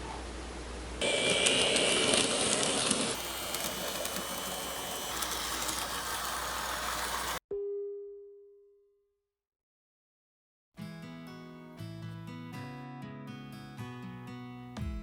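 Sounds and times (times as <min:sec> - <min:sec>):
electric motor whine: 0:01.0 - 0:07.4
wheels rattling on rail: 0:01.6 - 0:07.4.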